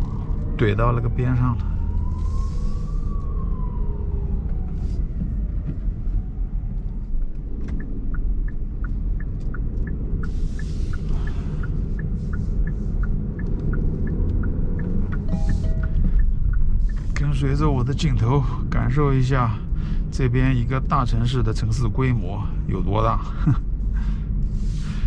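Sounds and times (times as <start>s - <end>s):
police siren wailing: 0.0s - 7.2s, 10.6s - 18.6s
road and engine rumble in car: 0.0s - 25.0s
turn signal ticking: 4.4s - 22.2s.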